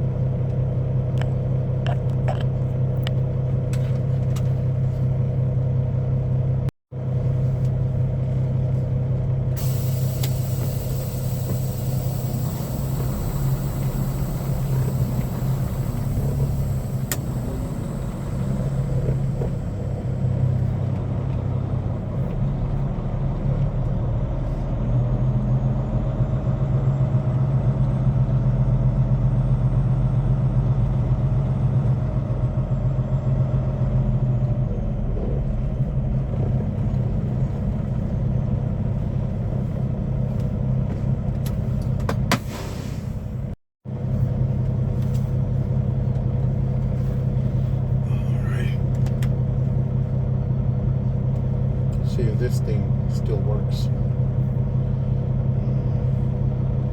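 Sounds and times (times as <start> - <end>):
diesel truck engine running: 0.0 - 56.9.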